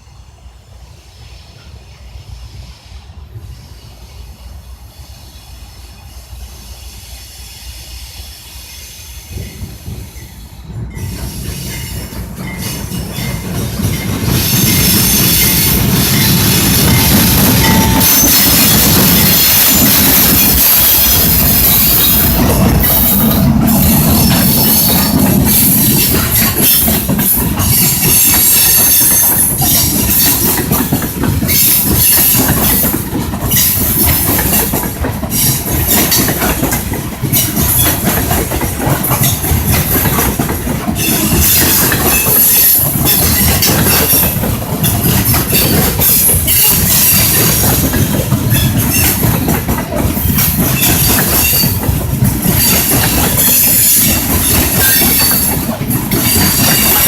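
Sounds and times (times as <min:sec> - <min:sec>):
train rolling on rails: 0:00.0 - 0:57.0
wheels squealing: 0:08.3 - 0:36.3.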